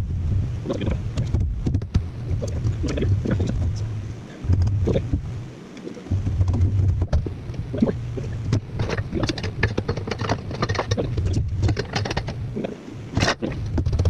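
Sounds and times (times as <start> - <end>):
steady low rumble: 0.0 - 14.0
rapid knocks clicks and rattles: 6.1 - 7.3, 8.5 - 12.4, 13.2 - 14.0.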